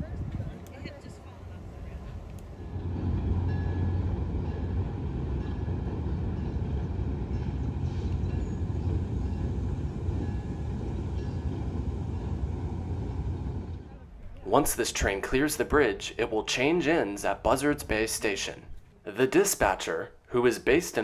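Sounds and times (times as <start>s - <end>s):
train rumbling over bridge: 0.0s - 17.4s.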